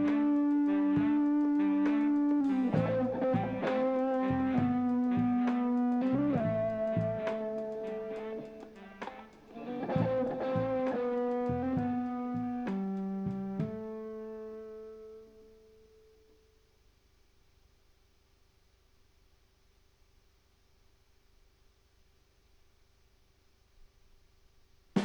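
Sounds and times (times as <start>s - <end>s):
groovy guitar-led music: 0.0s - 15.3s
steady bass beat: 2.6s - 5.4s, 6.1s - 7.5s.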